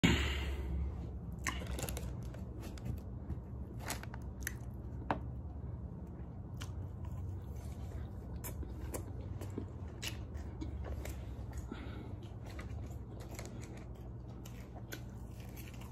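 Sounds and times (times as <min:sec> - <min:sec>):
steady low hum: 0:00.0 - 0:15.9
chewing and wet mouth smacking: 0:06.1 - 0:15.9.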